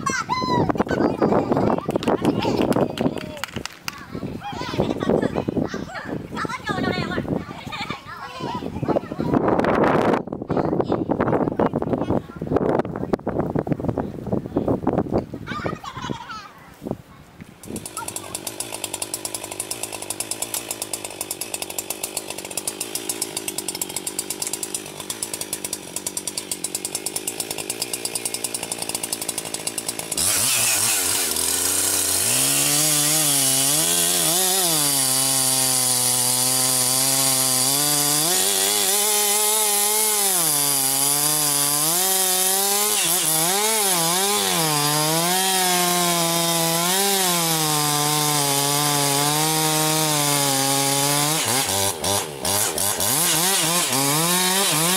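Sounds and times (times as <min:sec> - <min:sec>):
chainsaw cutting wood: 0:01.5 - 0:04.0, 0:17.6 - 0:54.9
chainsaw idling: 0:17.6 - 0:54.9.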